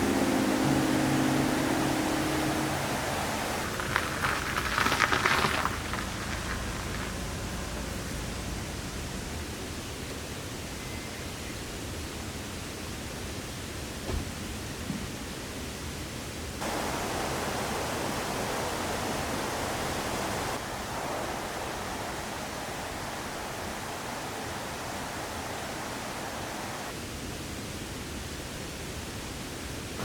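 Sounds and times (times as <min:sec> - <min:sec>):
mountain river rushing: 0:00.0 - 0:10.3, 0:16.6 - 0:30.0.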